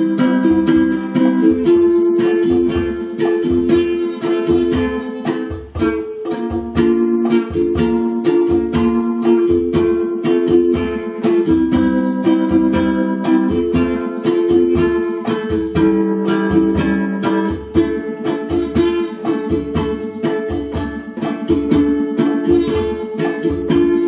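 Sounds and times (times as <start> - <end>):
ukulele strummed in chords: 0.0 - 24.0.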